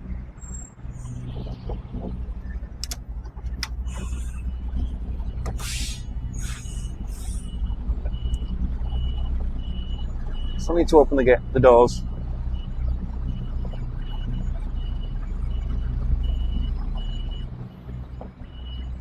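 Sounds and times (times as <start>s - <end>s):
diesel engine running: 0.0s - 19.0s
sharp clicks: 2.8s - 4.3s
reversing alarm beeping: 3.6s - 19.0s
short air hisses: 3.9s - 4.4s, 5.5s - 7.5s.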